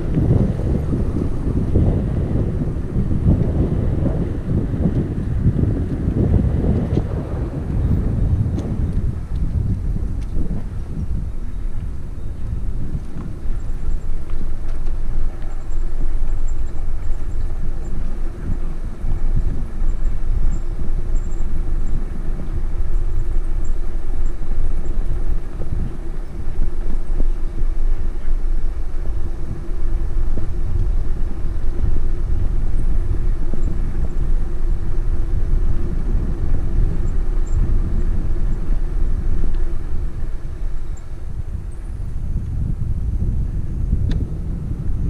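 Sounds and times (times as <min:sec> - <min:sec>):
bicycle tyre noise: 0:00.0 - 0:45.0
faint constant hum: 0:00.0 - 0:45.0
wind rumbling on microphone: 0:00.0 - 0:45.0.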